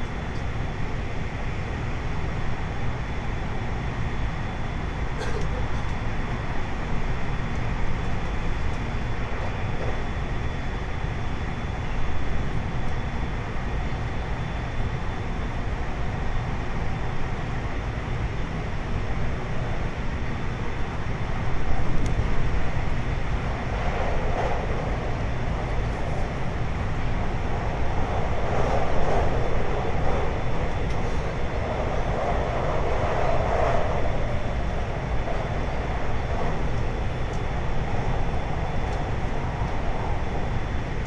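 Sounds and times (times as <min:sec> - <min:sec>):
train wheels rumbling on rail: 0:20.2 - 0:41.0.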